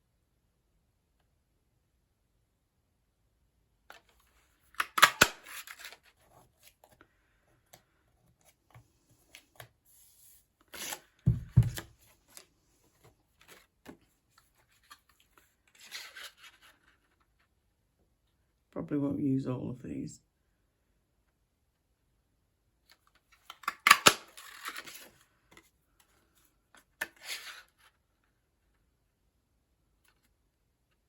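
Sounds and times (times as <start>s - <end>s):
card sliding and rustling: 3.9s - 7.0s, 7.6s - 17.2s, 23.4s - 27.9s.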